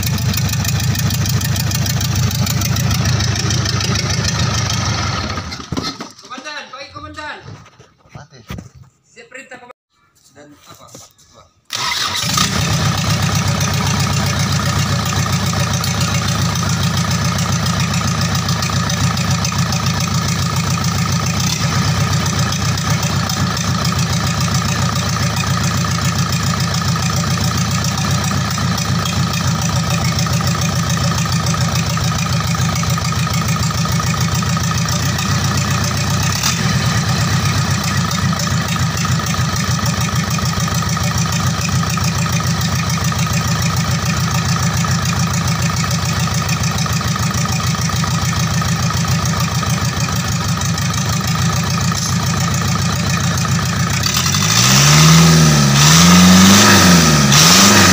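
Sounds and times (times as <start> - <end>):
diesel truck engine idling: 0.0 - 5.5, 12.6 - 55.3.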